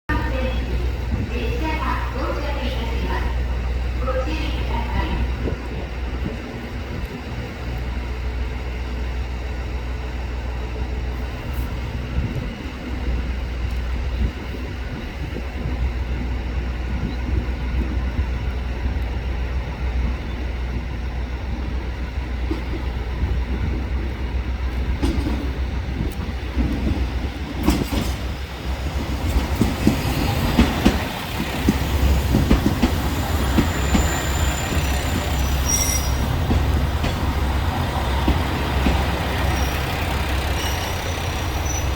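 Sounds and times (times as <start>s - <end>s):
diesel railcar rumbling on rails: 0.1s - 41.9s.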